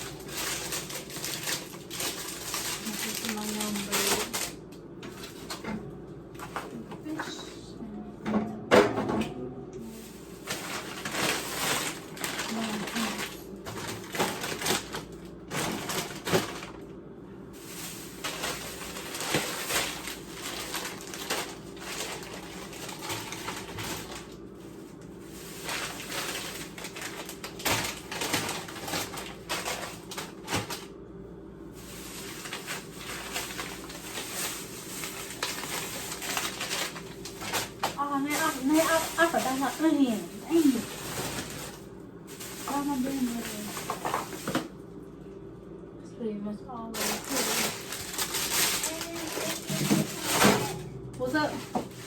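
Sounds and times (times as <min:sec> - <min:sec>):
steady low hum: 0:00.0 - 0:52.0
household objects clattering: 0:10.0 - 0:16.8, 0:42.4 - 0:44.7, 0:47.0 - 0:52.0.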